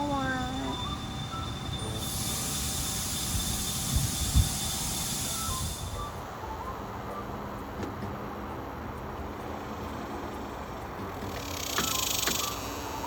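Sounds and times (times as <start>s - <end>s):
cicada buzzing: 11.1s - 13.0s.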